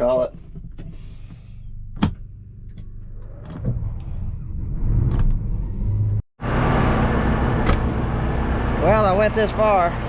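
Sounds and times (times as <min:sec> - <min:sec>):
diesel engine starting and running: 0:02.4 - 0:10.0
combine harvester working: 0:06.4 - 0:10.0.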